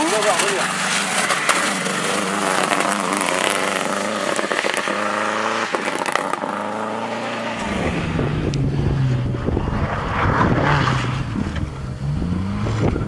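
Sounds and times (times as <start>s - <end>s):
sharp engine cracks: 0.0s - 5.0s
rally car engine at high revs: 0.0s - 13.0s.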